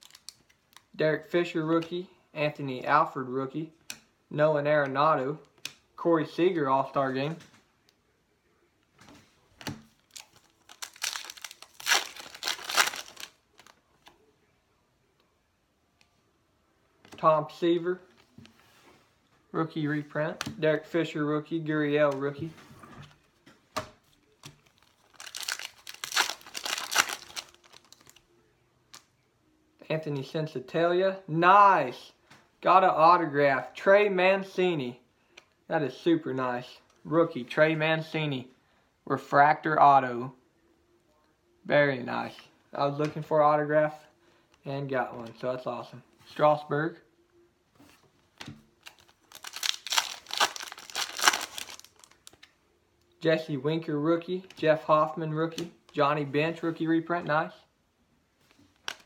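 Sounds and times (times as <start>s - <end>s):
foil wrapper crinkling: 10.0s - 13.7s, 24.6s - 28.2s, 48.8s - 52.5s
foil wrapper snapping: 10.1s - 13.7s, 24.7s - 28.2s, 48.8s - 52.5s.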